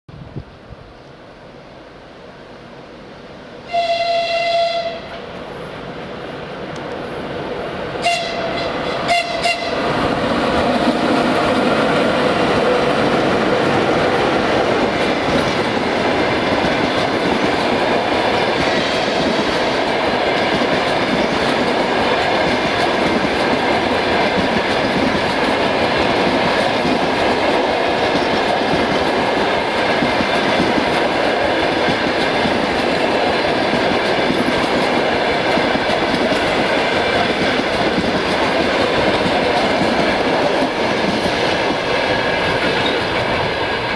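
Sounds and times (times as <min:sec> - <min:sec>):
locomotive horn blast: 0:03.7 - 0:05.2, 0:08.0 - 0:09.8
train wheels clattering on rails: 0:08.0 - 0:43.9.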